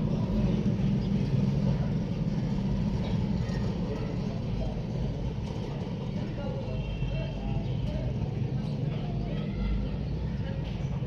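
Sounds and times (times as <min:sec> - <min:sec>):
petrol engine running: 0:00.0 - 0:11.0.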